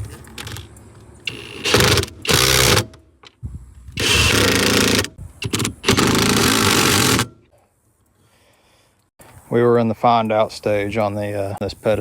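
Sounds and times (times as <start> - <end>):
handheld power tool bursts: 1.3 - 3.0, 4.0 - 7.5.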